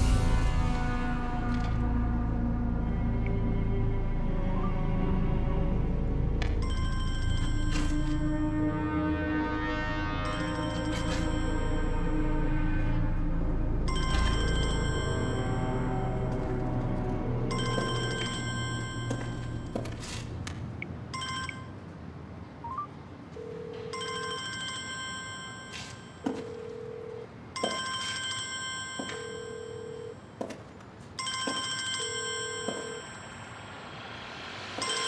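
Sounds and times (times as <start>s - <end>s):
phone ringtone: 6.6s - 8.4s, 17.5s - 20.1s, 21.2s - 21.8s, 22.6s - 30.4s, 31.2s - 33.4s.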